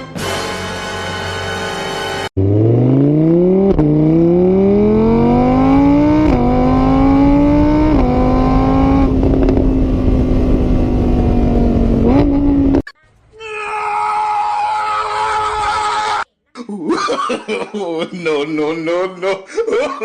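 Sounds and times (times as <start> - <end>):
car engine accelerating: 2.2 - 12.9.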